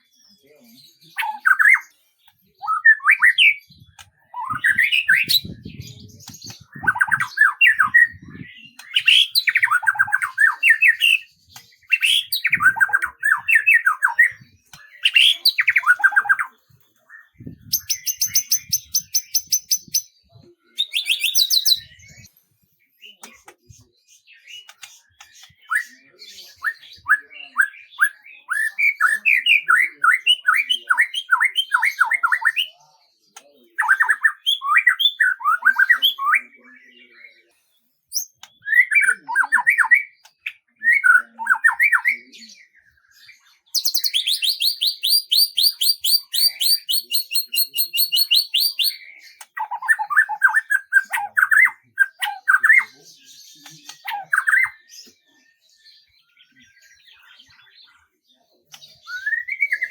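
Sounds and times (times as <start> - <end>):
songbirds singing: 0.0 - 59.9
high rapid bird trill: 17.8 - 20.1.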